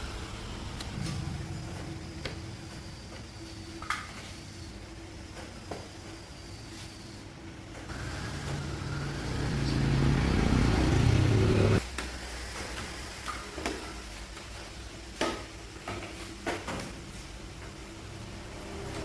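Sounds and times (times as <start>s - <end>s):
motor running: 7.9s - 11.8s.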